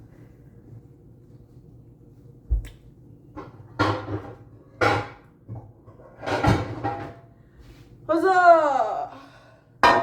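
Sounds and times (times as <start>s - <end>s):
baking pans clattering: 3.4s - 7.3s.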